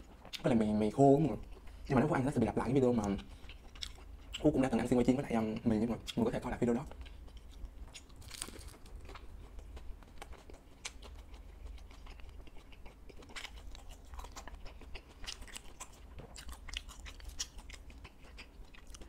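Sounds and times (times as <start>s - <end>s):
person chewing fried snacks: 3.0s - 4.6s, 6.8s - 19.0s.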